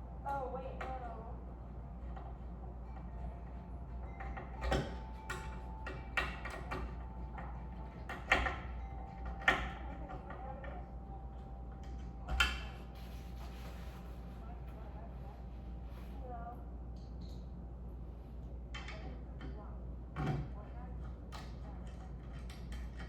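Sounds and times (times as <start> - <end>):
steady low hum: 0.0 - 23.0
clicks and knocks of tools: 20.2 - 23.0.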